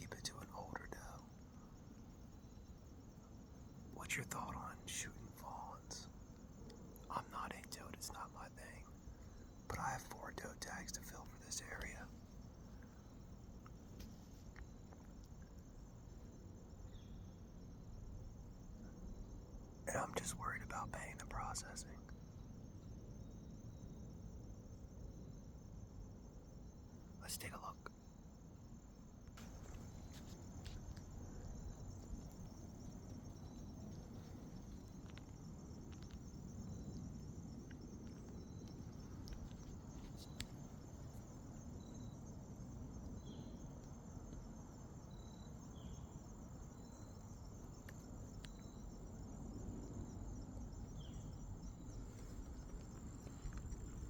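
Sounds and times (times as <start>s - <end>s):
insects trilling: 0.0s - 54.0s
faint clicks: 29.2s - 31.2s, 37.6s - 41.3s, 47.8s - 48.7s, 51.9s - 54.0s.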